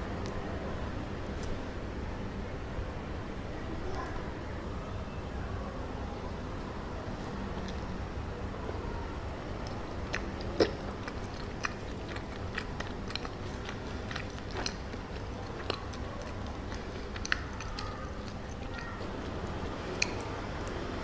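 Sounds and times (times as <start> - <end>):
steady low hum: 0.0 - 21.0
wet mouth clicks and smacks: 9.6 - 20.8
chewing and biting: 9.6 - 21.0.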